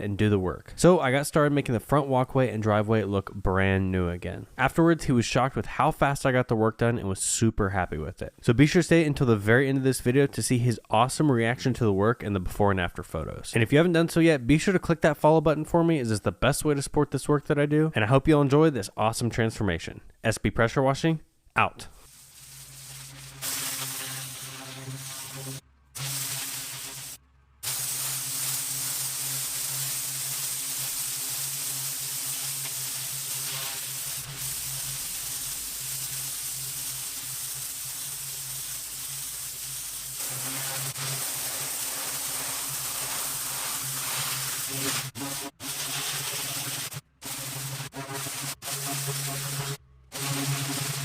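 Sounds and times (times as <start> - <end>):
high-pressure water jet hissing: 22.1 - 51.0.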